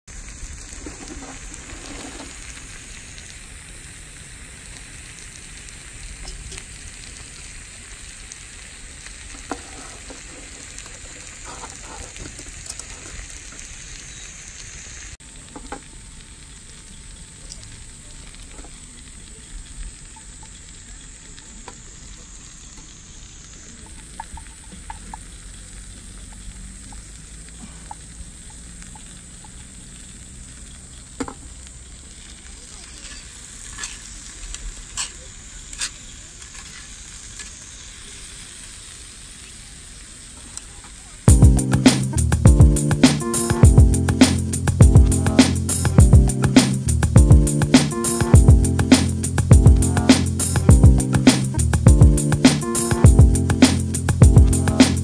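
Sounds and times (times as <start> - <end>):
food sizzling: 0.0 - 55.0.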